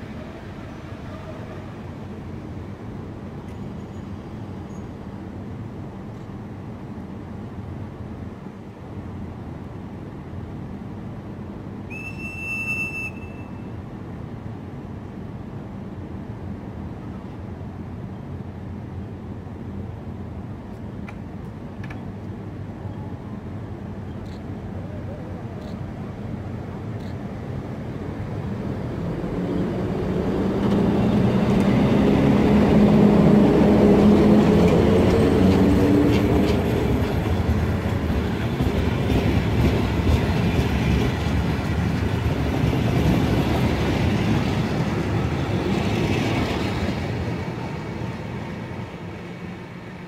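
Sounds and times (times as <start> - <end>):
electric locomotive hum: 19.5 - 50.0
train coaches rumbling: 21.0 - 50.0.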